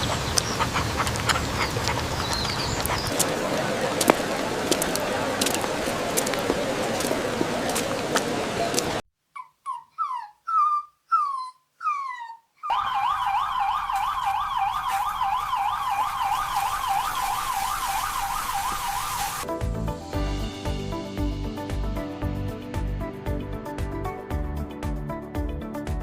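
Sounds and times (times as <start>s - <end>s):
puppy yelping: 9.4s - 12.8s
ambulance siren wailing: 11.2s - 19.4s
steady hiss: 16.0s - 19.4s.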